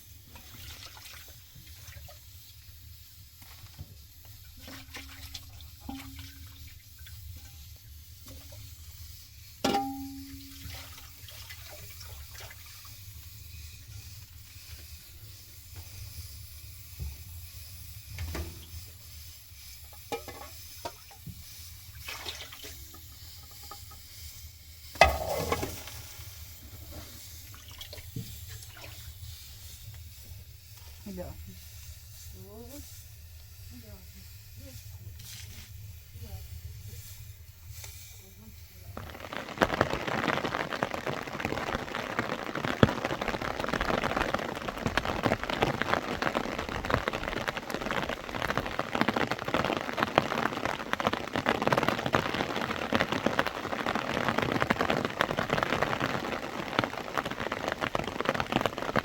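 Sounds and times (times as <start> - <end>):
water splashing and running: 0.3 - 2.4, 3.4 - 7.3, 9.8 - 13.2, 20.2 - 24.0, 26.9 - 29.5, 38.8 - 59.0.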